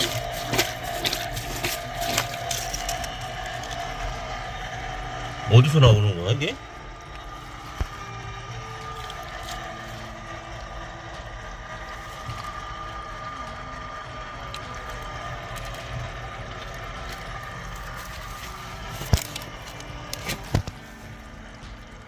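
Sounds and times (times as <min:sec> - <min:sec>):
water rushing from leaking pipe: 0:00.0 - 0:21.6
pump humming: 0:00.0 - 0:22.0.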